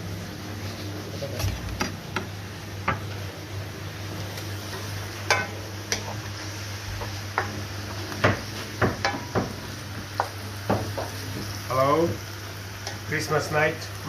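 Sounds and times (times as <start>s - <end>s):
faint sizzling in a pan: 0.0s - 14.0s.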